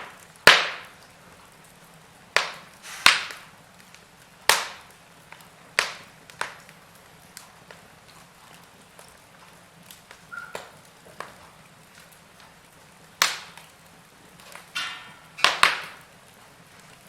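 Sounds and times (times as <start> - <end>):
wood fire crackling and popping: 0.0 - 17.0
short hiss: 2.8 - 3.5.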